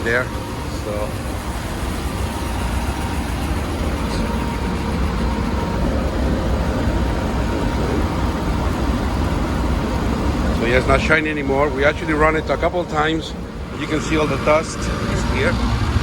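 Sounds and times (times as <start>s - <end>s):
belt sanding machine running: 0.0s - 16.0s.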